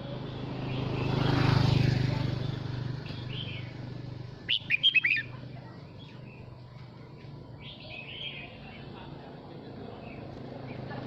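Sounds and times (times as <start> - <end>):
bird singing clear notes: 4.4 - 5.3.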